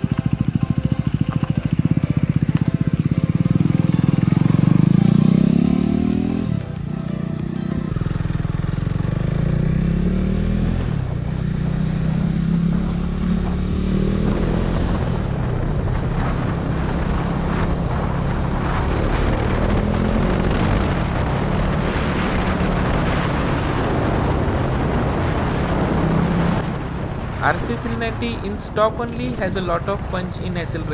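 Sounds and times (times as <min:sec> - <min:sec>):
motorcycle engine running hard: 0:00.0 - 0:30.9
wind noise: 0:10.8 - 0:30.9.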